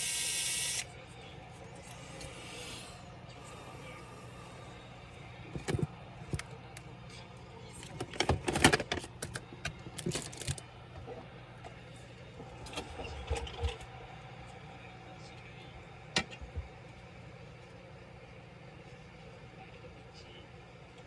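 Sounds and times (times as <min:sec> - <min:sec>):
small parts and tools clattering: 0:05.5 - 0:06.5, 0:07.8 - 0:10.6.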